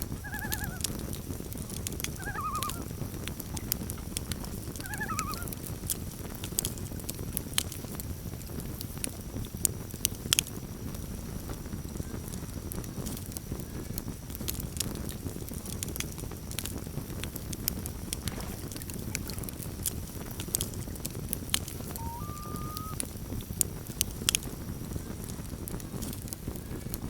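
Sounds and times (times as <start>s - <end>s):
sharp pops of fire: 0.0s - 2.2s, 2.8s - 27.0s
campfire crackling: 0.0s - 27.0s
loon wailing call: 0.2s - 0.9s, 2.1s - 2.9s, 4.8s - 5.6s, 21.9s - 23.0s.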